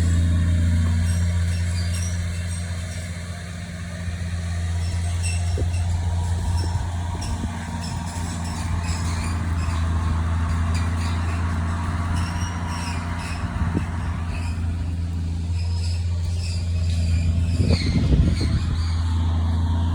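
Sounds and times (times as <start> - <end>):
machine engine droning: 0.0 - 19.9.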